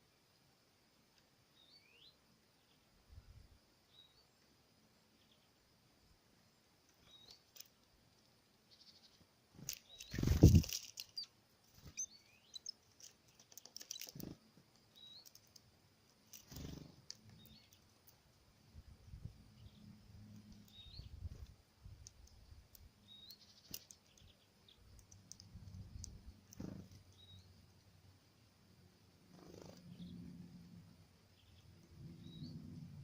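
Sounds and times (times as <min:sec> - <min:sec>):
birds chirping: 0:06.5 - 0:18.2, 0:19.1 - 0:28.5, 0:29.3 - 0:30.4
birds tapping on feeder: 0:09.6 - 0:17.8.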